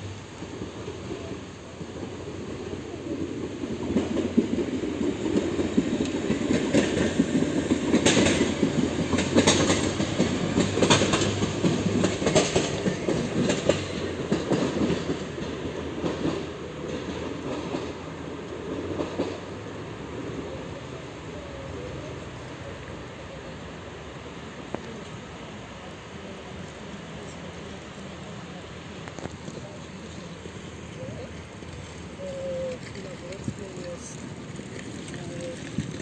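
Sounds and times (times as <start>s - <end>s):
train rumble: 0.0s - 36.0s
train wheels clattering over rail joints: 2.6s - 19.7s, 26.5s - 36.0s.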